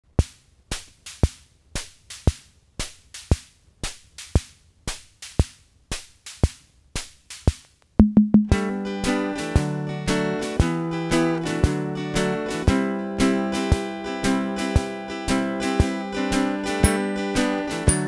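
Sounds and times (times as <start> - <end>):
percussion beat of clicks and thumps: 0.1 - 8.7, 16.8 - 18.0
plucked and strummed guitar: 8.4 - 18.0.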